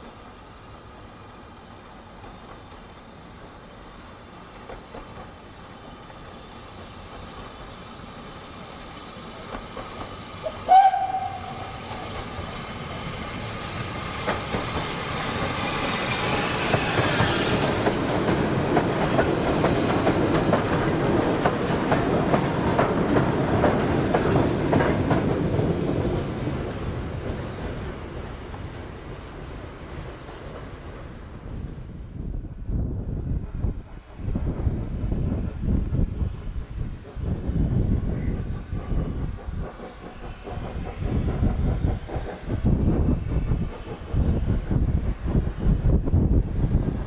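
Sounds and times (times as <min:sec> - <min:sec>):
steam train passing: 0:00.0 - 0:47.0
train whistle toot: 0:10.4 - 0:12.0.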